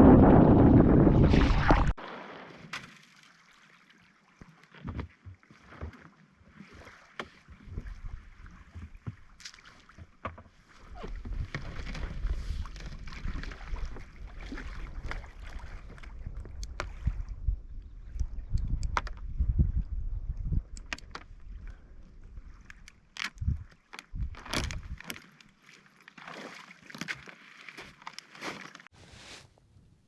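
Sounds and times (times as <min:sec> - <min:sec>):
paddle splashing and knocking: 0:00.0 - 0:17.2.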